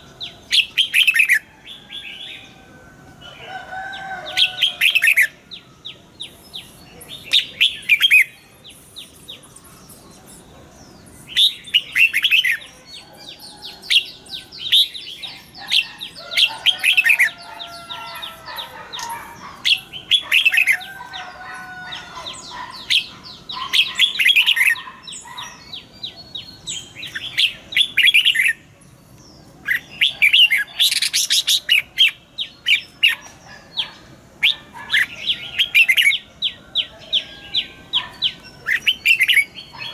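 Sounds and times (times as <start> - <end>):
bird singing chirpy phrases: 0.0 - 2.5, 3.3 - 39.9.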